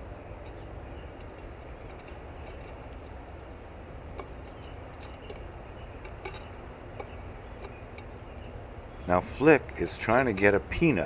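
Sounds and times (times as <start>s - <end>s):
steady low rumble: 8.6s - 11.0s.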